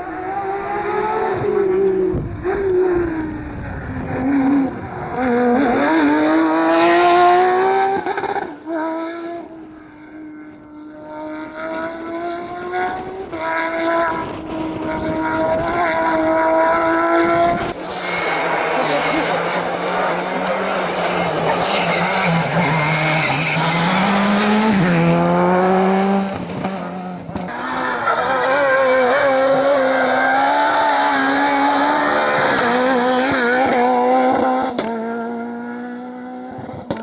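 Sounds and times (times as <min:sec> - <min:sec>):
rally car engine revving: 0:00.0 - 0:37.0
tyre and road noise: 0:17.6 - 0:35.3.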